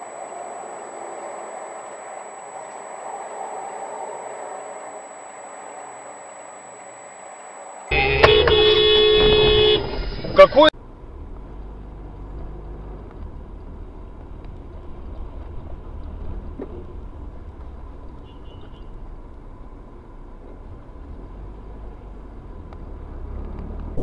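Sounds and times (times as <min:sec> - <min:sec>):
faint steady hum: 0:00.0 - 0:10.5
car engine and road noise: 0:00.0 - 0:24.0.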